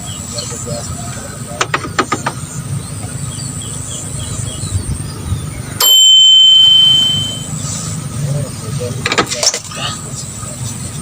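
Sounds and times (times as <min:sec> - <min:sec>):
high-pitched beep: 0:05.8 - 0:07.6.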